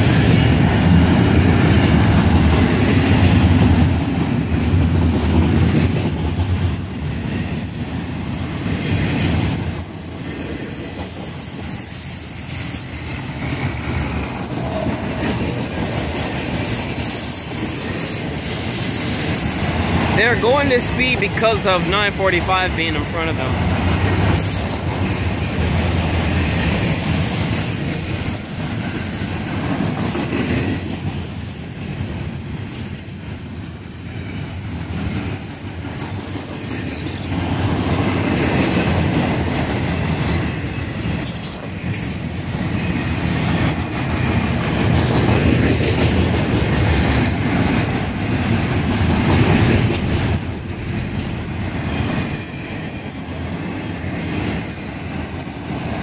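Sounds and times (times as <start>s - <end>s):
train wheels rumbling on rail: 0.0s - 56.0s
wheels clicking over rail joints: 23.8s - 56.0s.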